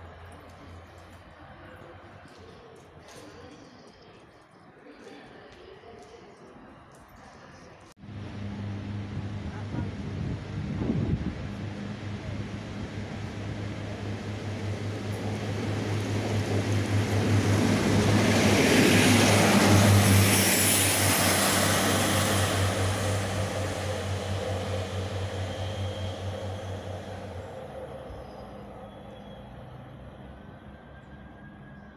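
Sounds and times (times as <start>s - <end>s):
train engine drone: 6.6s - 31.9s
train wheel rumble: 8.0s - 31.9s.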